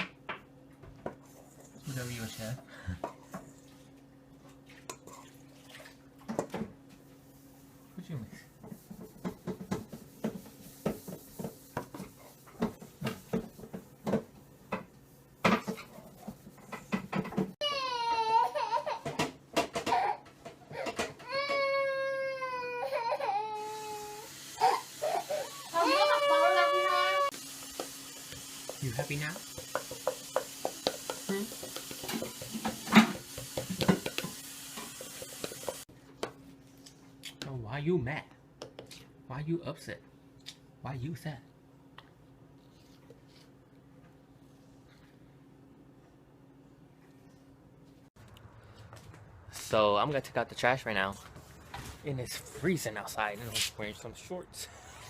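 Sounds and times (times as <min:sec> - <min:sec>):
utensil knocking against bowl: 0:29.4 - 0:35.8.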